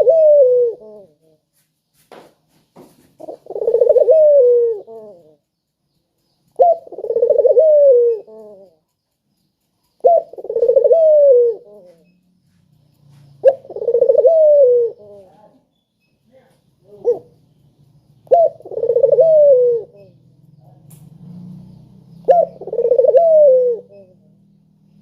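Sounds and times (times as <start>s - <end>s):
dove cooing: 0.0s - 1.4s, 3.2s - 5.4s, 6.5s - 8.8s, 10.0s - 12.2s, 13.2s - 15.5s, 16.8s - 17.4s, 18.2s - 20.2s, 22.1s - 24.3s.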